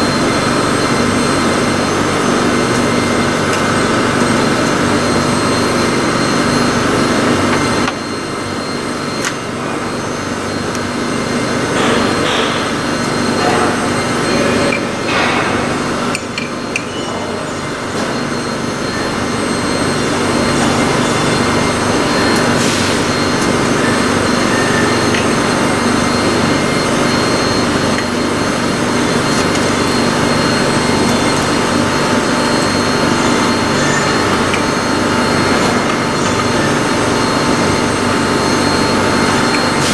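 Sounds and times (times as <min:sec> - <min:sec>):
valve grinder motor humming: 0:17.9 - 0:39.9.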